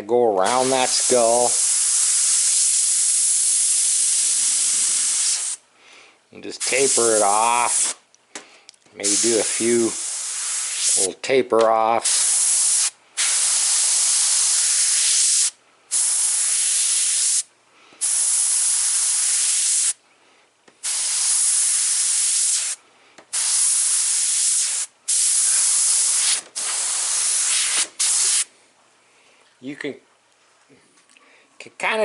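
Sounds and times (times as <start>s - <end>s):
airbrush spraying hissing bursts: 0.4s - 5.6s, 6.6s - 8.0s, 9.0s - 11.1s, 12.0s - 20.0s, 20.8s - 28.5s.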